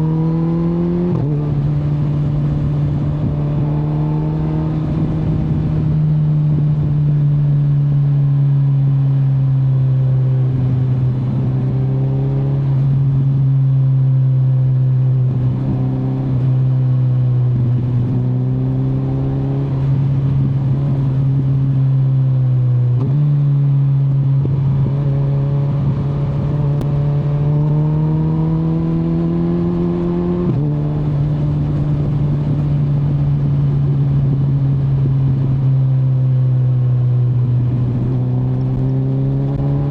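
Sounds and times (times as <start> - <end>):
motorcycle engine revving: 0.0 - 39.9
wind rush: 0.1 - 7.1, 24.4 - 35.8.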